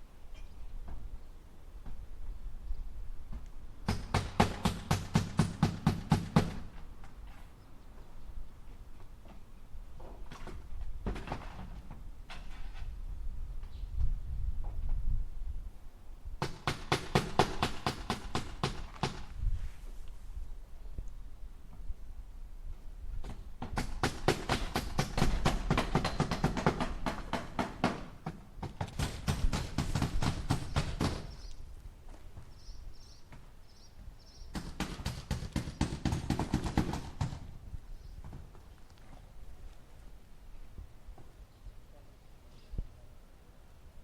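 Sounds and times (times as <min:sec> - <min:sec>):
hammer driving nails into wood: 0:03.9 - 0:06.7, 0:16.4 - 0:19.3, 0:23.2 - 0:31.4, 0:34.5 - 0:37.5.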